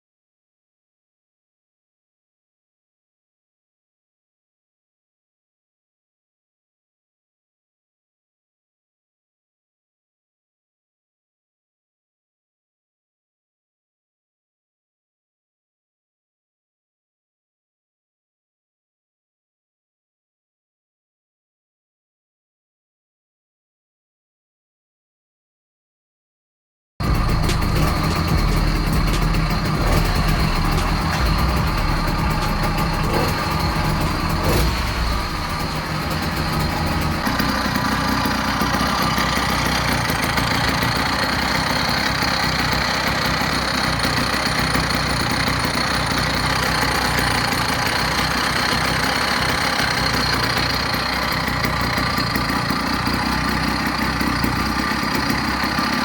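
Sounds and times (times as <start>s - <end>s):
small two-stroke engine idling: 27.0s - 56.0s.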